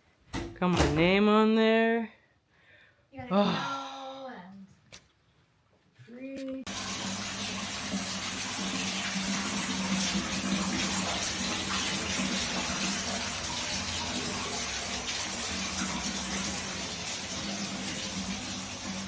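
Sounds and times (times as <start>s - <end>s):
running water: 6.6s - 19.0s.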